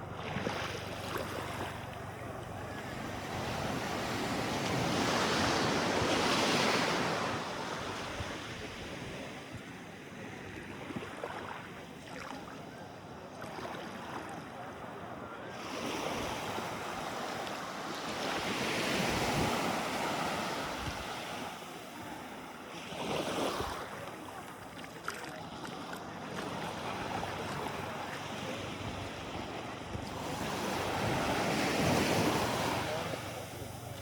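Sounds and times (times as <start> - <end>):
sea waves washing in: 15.6 - 34.0.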